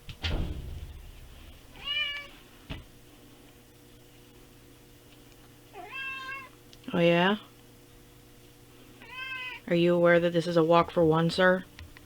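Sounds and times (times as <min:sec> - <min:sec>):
cat meowing: 0:01.8 - 0:02.4, 0:05.7 - 0:06.6, 0:09.0 - 0:09.7.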